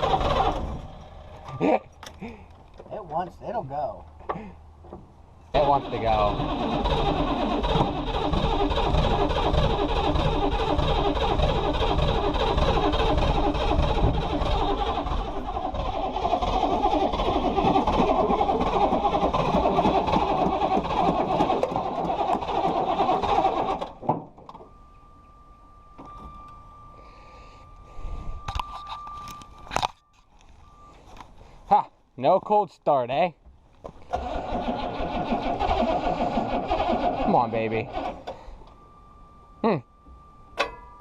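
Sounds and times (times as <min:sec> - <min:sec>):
diesel engine running rough: 0:00.0 - 0:02.5, 0:05.5 - 0:24.0, 0:34.0 - 0:38.7
faint steady tone: 0:24.4 - 0:32.1, 0:38.2 - 0:41.0.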